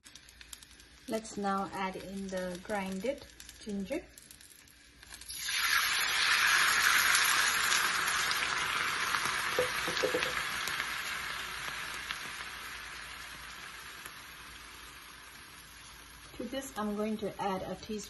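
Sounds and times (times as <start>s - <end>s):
paste sizzling in hot oil: 0.1s - 18.0s.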